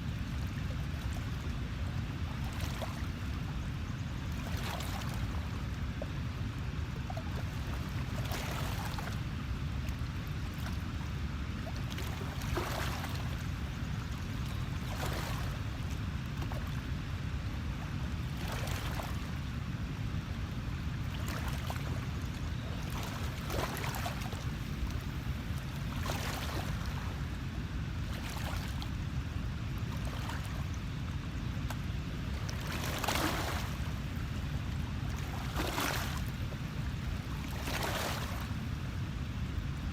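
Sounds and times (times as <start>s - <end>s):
small washes of water: 0.0s - 39.9s
steady low rumble: 19.1s - 26.0s.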